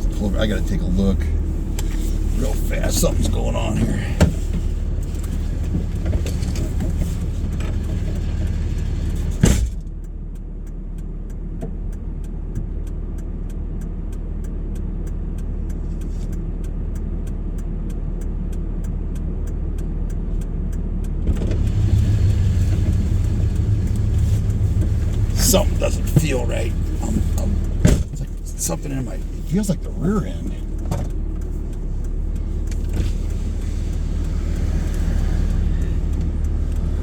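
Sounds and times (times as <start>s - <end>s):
road hiss: 0.0s - 9.7s, 21.3s - 37.0s
car engine rumble: 0.0s - 37.0s
indicator flasher ticking: 7.8s - 37.0s.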